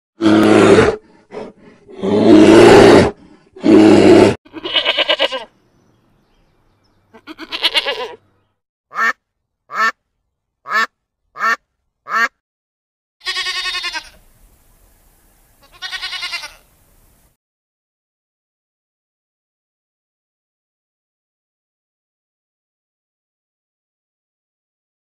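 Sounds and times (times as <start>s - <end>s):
bear growling roars: 0.2s - 4.4s
sheep bleating: 4.5s - 5.5s, 7.1s - 8.2s, 13.2s - 14.2s, 15.6s - 16.7s
duck quacking: 8.9s - 10.0s, 10.6s - 12.4s.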